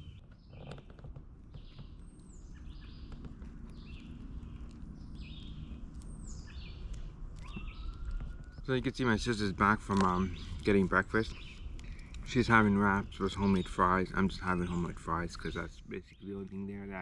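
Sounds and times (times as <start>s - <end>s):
low outdoor rumble: 0.0s - 17.0s
songbird singing: 0.0s - 17.0s
faint clicks: 0.3s - 8.8s, 9.7s - 12.4s.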